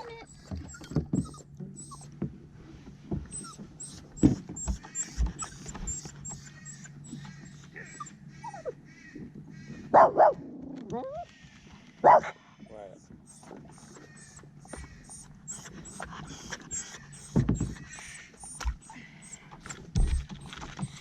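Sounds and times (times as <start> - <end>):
dog whimpering: 0.0 - 2.1, 3.3 - 8.8, 13.3 - 19.4
dog barking: 9.9 - 10.4, 12.0 - 12.4.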